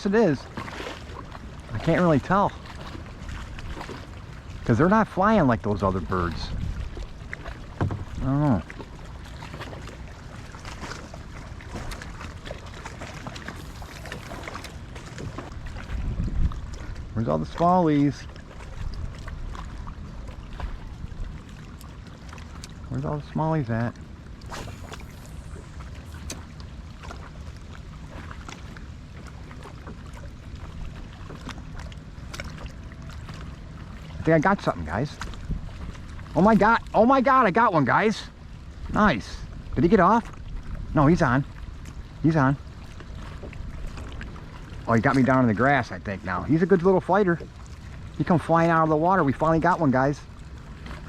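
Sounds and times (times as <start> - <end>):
water lapping against kayak hull: 0.0 - 51.0
steady low rumble: 1.2 - 37.0.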